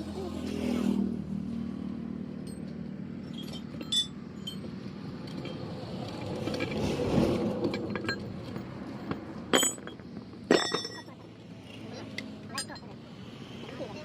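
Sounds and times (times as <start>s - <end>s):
metallic tool clinks: 3.3s - 4.7s, 9.6s - 11.2s.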